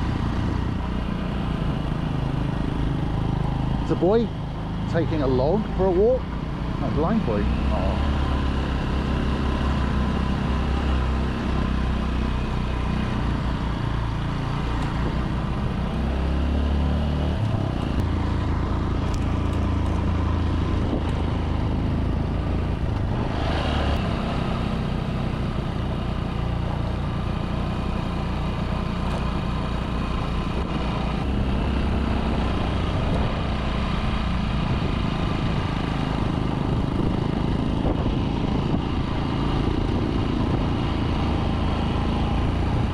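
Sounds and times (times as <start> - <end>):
wind and road noise: 0.0 - 42.9
small motorbike engine running: 6.8 - 23.4.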